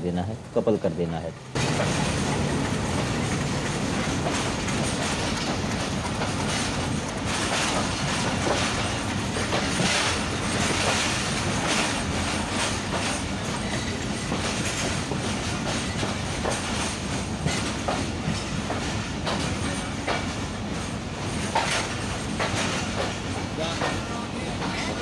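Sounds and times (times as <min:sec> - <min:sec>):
train wheels rumbling and rattling: 0:00.0 - 0:25.0
wheels clacking over rail joints: 0:01.4 - 0:25.0.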